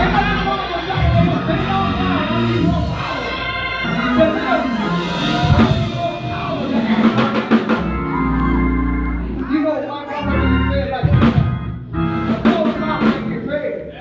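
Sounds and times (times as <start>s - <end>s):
drum kit hits: 0.0s - 8.1s, 11.0s - 13.5s
live church band music: 0.0s - 14.0s
sustained keyboard chords: 0.0s - 14.0s.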